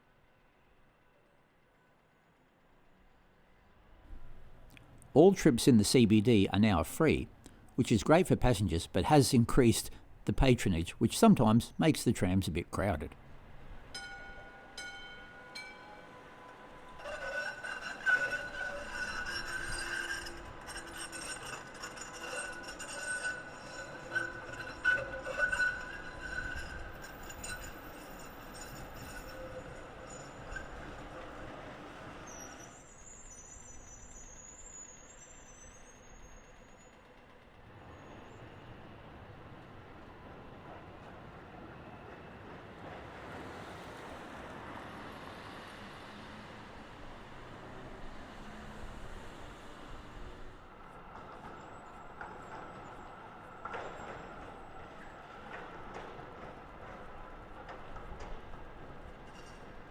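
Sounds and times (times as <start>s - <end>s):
tram rolling over rails: 3.2s - 59.9s
tram wheels squealing: 5.2s - 59.9s
thin high squeal: 16.9s - 31.5s, 32.2s - 37.0s
tram wheels knocking on track joints: 50.9s - 59.9s.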